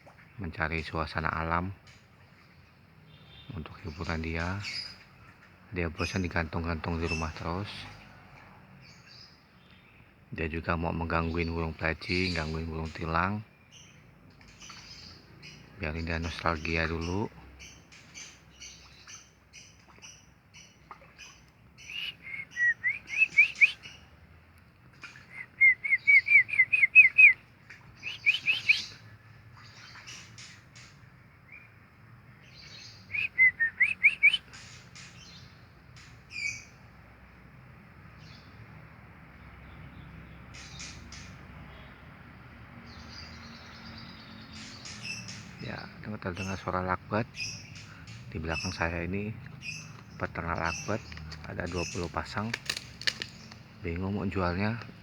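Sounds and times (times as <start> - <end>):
birds chirping rapidly: 0.0 - 55.0
sharp high bird calls: 15.9 - 24.1, 24.9 - 31.7, 32.4 - 36.8.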